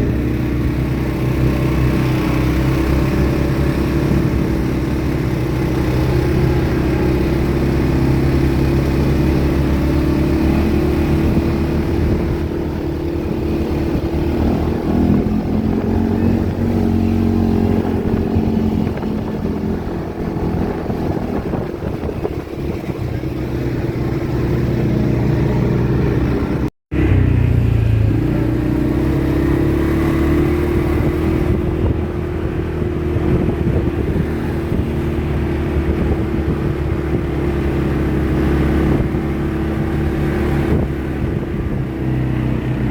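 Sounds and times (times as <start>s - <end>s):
atv engine running: 0.0s - 42.9s.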